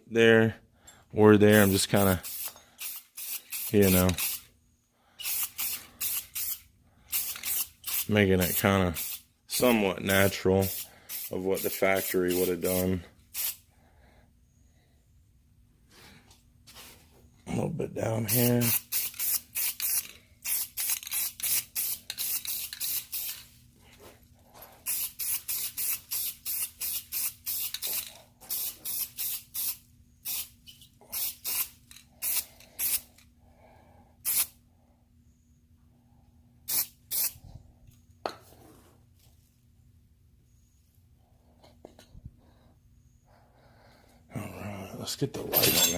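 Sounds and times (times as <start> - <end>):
faint steady hum: 0.0 - 45.9
aerosol spray can hissing: 2.2 - 4.4.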